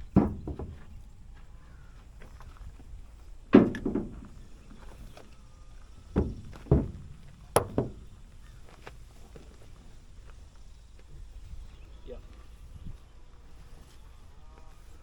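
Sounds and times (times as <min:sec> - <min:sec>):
dull clunks and knocks: 0:00.0 - 0:11.3.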